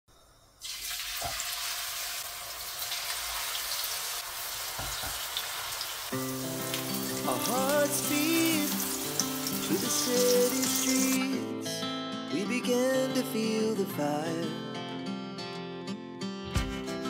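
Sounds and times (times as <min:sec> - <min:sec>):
eggplant sizzling in hot oil: 0:00.4 - 0:11.2
background music: 0:06.1 - 0:17.0.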